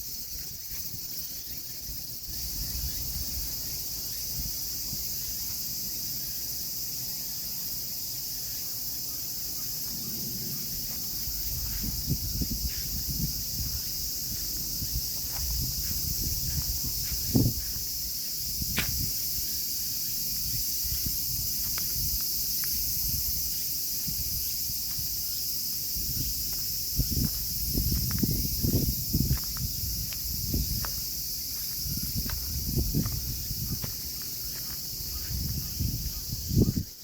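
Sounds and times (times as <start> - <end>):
shrill insect chorus: 0.0 - 37.0.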